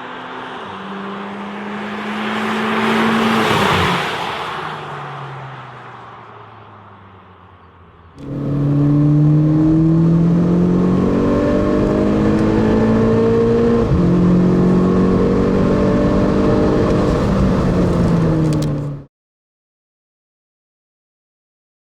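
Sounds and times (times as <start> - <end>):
car engine accelerating hard: 0.0 - 4.9, 8.2 - 19.1.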